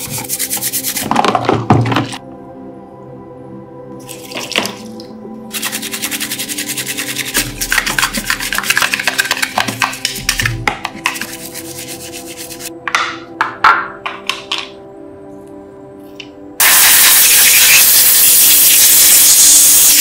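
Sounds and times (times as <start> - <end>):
hand sanding strokes: 0.0 - 1.1, 5.5 - 7.4, 11.0 - 12.7
background music: 0.0 - 20.0.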